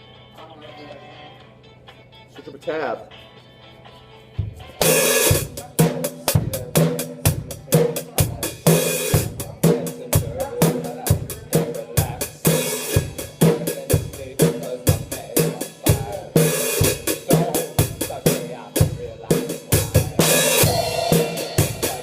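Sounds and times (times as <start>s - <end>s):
drum kit playing rock beat: 4.3s - 22.0s
held pitched notes: 4.5s - 22.0s.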